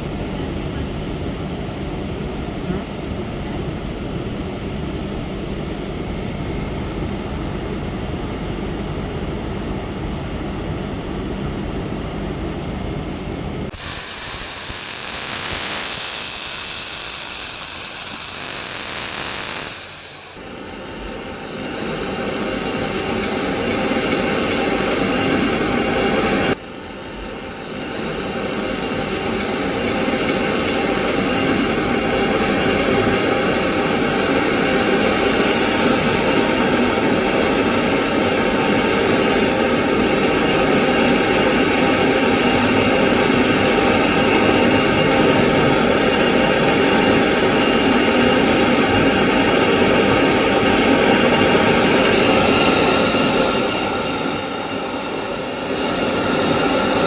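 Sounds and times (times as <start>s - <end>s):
mechanical hum: 0.0s - 57.0s
loud even hissing: 13.7s - 20.4s.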